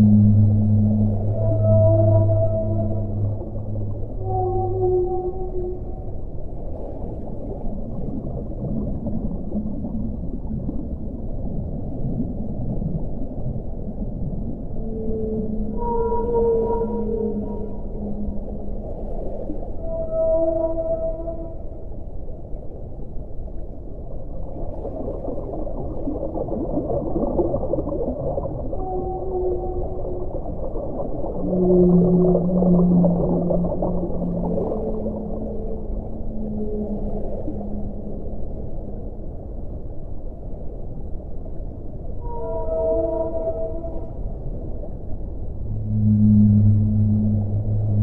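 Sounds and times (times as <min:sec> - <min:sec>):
steady tonal call: 0:00.0 - 0:06.3, 0:14.8 - 0:19.0, 0:19.7 - 0:21.9, 0:28.7 - 0:30.6, 0:31.2 - 0:39.2, 0:42.2 - 0:44.3, 0:45.4 - 0:48.0
faint low tones: 0:00.0 - 0:06.7, 0:07.4 - 0:23.9, 0:28.6 - 0:48.0
ocean water rumbling: 0:00.0 - 0:48.0.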